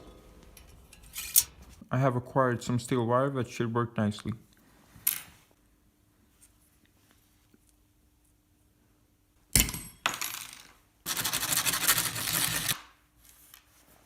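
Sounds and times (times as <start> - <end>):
steel wire clinking: 0.4 - 1.6.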